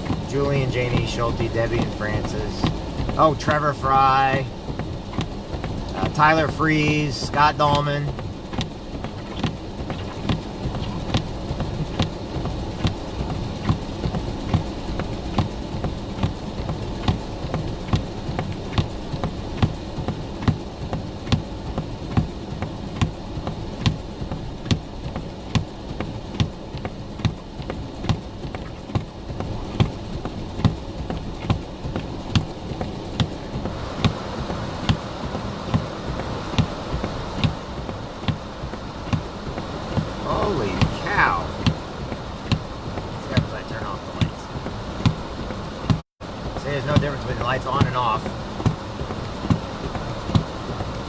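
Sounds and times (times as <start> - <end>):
car engine and road rumble: 0.0 - 51.0
regular ticking knock: 46.6 - 51.0.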